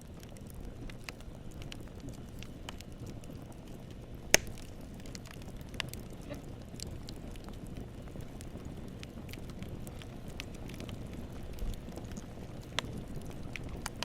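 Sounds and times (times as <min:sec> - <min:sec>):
campfire flames rumbling: 0:00.0 - 0:14.0
wood crackling: 0:00.0 - 0:14.0
loud pop of fire: 0:04.3 - 0:05.9.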